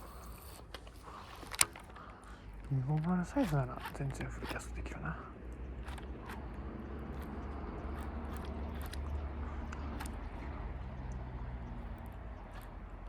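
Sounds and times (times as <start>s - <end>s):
fishing reel cranking: 5.7s - 13.0s.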